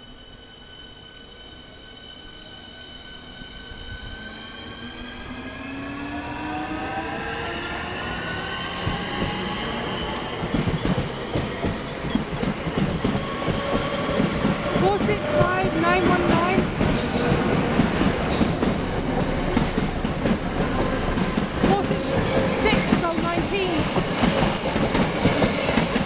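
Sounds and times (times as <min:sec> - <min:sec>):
train traction motor whine: 0:00.0 - 0:26.0
wheels clacking over rail joints: 0:08.2 - 0:26.0.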